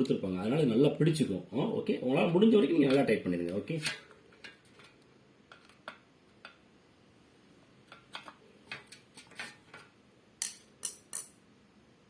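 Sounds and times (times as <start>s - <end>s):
metallic clicks of tools and bolts: 7.9s - 11.4s.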